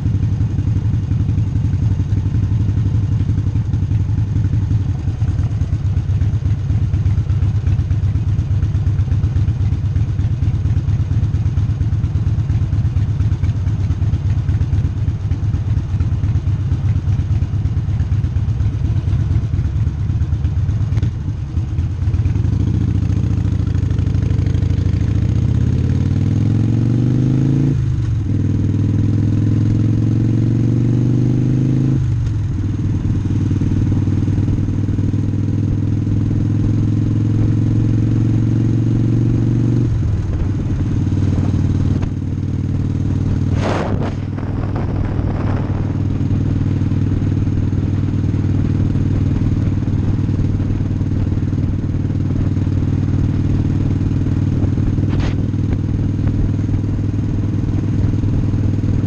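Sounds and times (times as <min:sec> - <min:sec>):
motorcycle engine idling: 0:00.0 - 0:59.0
motorcycle revving and pulling away: 0:00.0 - 0:59.0.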